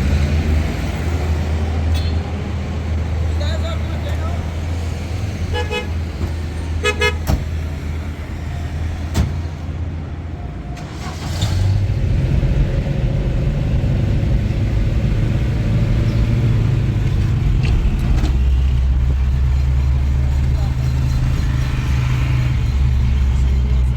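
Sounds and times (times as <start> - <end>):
vehicle engine and road rumble: 0.0 - 23.9
car horn toot: 5.5 - 6.0, 6.8 - 7.4.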